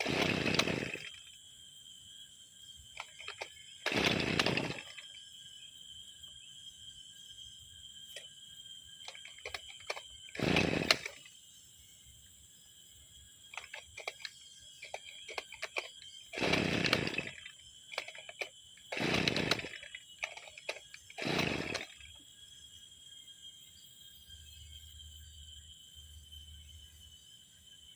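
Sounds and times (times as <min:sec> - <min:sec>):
brushcutter engine cranking: 0:00.0 - 0:01.4, 0:03.0 - 0:05.1, 0:09.0 - 0:11.3, 0:13.5 - 0:22.2.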